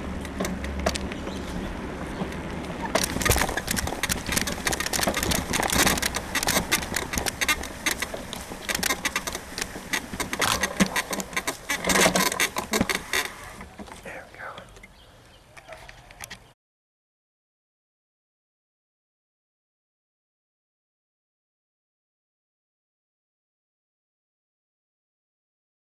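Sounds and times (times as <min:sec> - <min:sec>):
bicycle suspension creaking and clicking: 0:00.0 - 0:14.0
bicycle rolling noise: 0:00.0 - 0:16.6.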